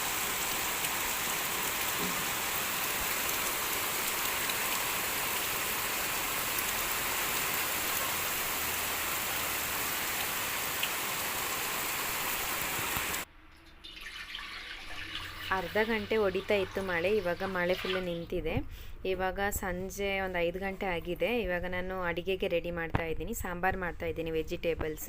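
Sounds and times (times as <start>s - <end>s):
heavy rain hissing: 0.0s - 13.2s.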